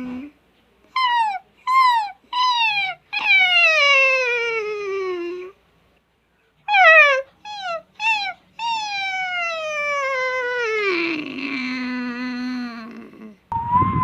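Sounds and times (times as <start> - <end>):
dog whimpering: 0.0 - 5.6, 6.7 - 13.4.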